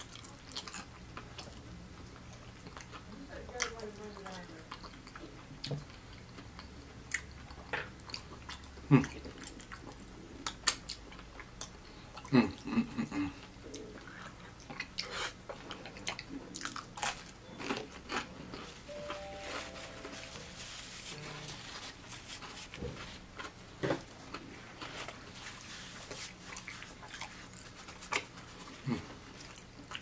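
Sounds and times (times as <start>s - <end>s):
wet chewing smacks: 22.5s - 30.0s.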